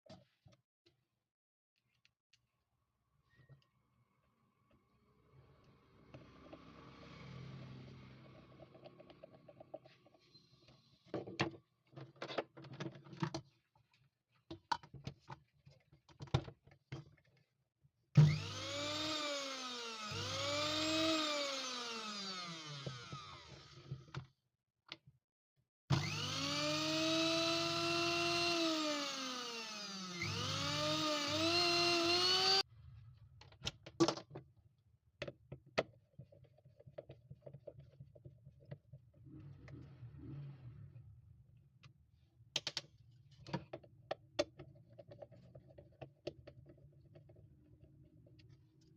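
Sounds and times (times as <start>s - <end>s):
small electric motor whirring: 18.2s - 24.0s, 25.9s - 32.7s.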